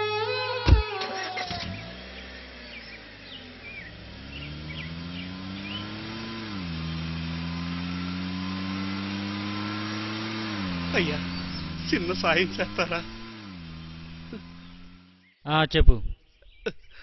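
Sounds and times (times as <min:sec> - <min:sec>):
car engine accelerating: 0:00.0 - 0:15.3.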